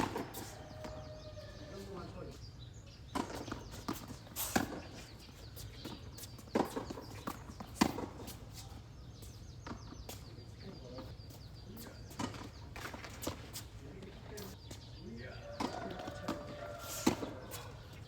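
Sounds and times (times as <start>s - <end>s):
racket hitting tennis ball: 0.0s - 1.1s, 3.1s - 5.2s, 5.8s - 8.7s, 15.6s - 17.7s
tennis ball bouncing: 0.0s - 1.3s, 3.1s - 8.7s, 12.1s - 14.5s, 15.5s - 17.6s.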